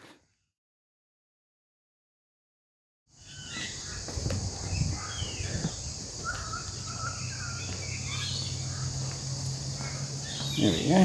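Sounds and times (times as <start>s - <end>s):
bird chirps and calls: 3.2s - 9.0s, 9.8s - 11.0s
insects droning: 3.2s - 11.0s.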